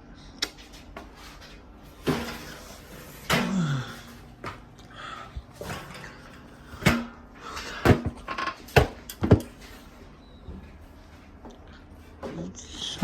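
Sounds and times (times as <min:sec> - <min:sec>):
hard objects knocking and clattering: 0:06.8 - 0:09.6.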